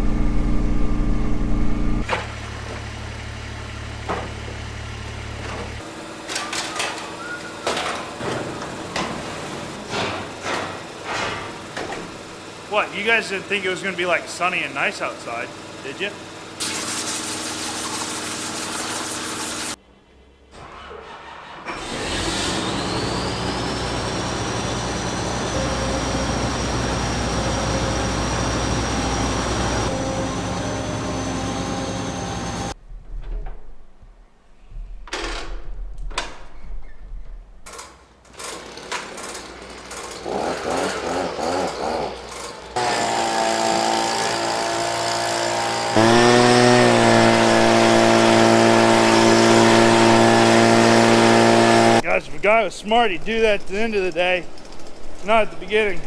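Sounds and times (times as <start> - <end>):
machine engine whining: 0.0 - 2.2, 21.2 - 32.8, 42.7 - 56.0
engine revving: 21.7 - 32.8, 40.2 - 52.0.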